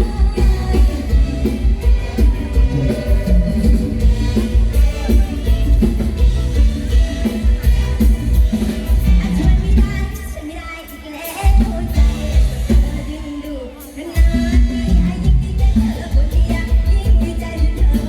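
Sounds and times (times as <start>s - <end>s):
heavy bass beat: 0.0s - 10.2s, 11.6s - 13.1s
live band music with singing: 0.0s - 18.0s.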